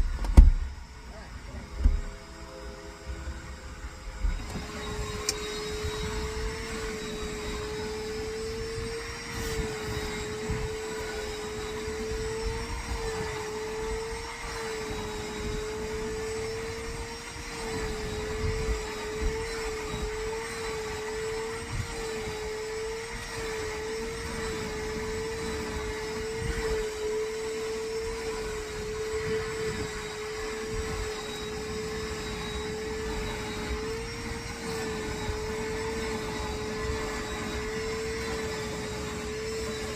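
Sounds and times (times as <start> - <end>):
vacuum cleaner whining: 0.0 - 39.9.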